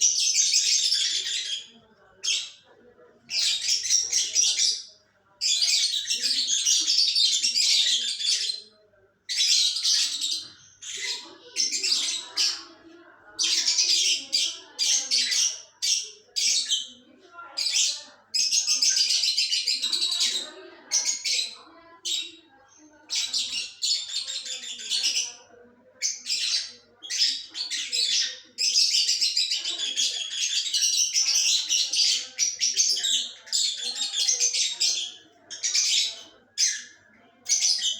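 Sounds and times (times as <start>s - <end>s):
lovebirds chirping: 0.0s - 37.9s.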